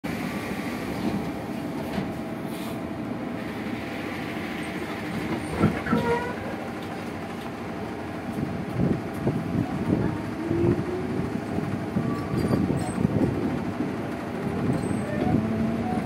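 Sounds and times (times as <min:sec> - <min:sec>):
train wheels rumbling on rail: 0:00.1 - 0:16.0
brief squeal: 0:12.0 - 0:13.0.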